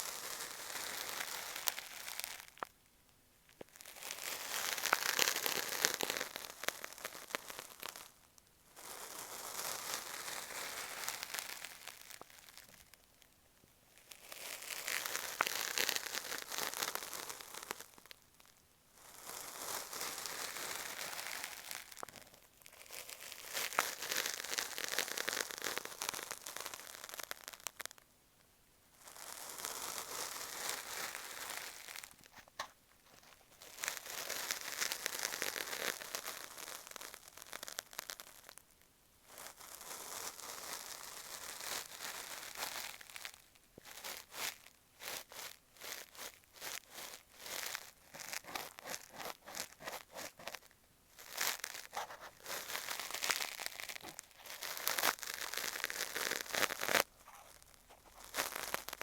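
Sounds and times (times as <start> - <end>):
cotton swab rubbing microphone: 47.5 - 50.7, 51.4 - 59.0.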